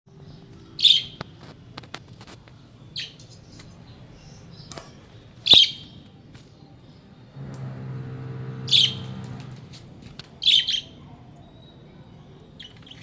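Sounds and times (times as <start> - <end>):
budgerigar chirping: 5.5 - 5.8, 8.6 - 9.2.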